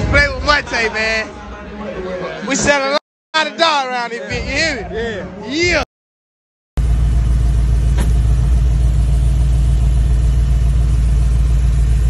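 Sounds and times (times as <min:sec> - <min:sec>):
car engine idling: 0:06.8 - 0:12.0.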